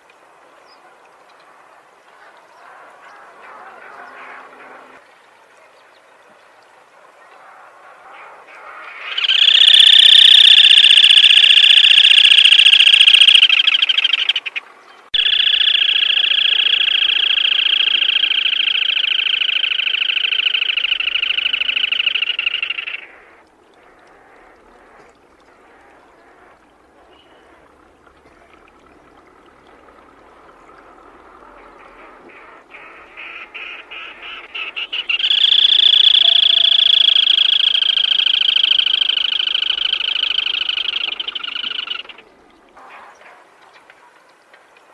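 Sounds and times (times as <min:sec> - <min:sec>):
bird rattling trill: 0:09.2 - 0:14.4, 0:15.2 - 0:23.0, 0:35.1 - 0:42.1.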